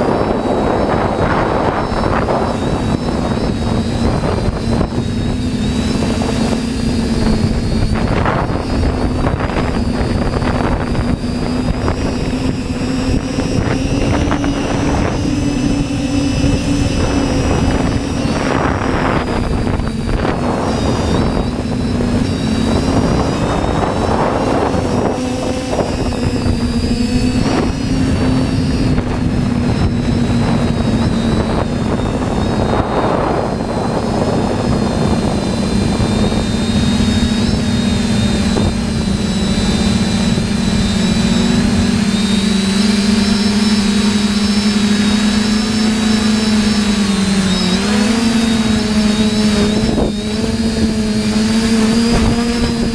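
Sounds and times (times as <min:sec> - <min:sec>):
quadcopter motors humming: 0:00.0 - 0:52.9
wind buffeting microphone: 0:00.0 - 0:52.9.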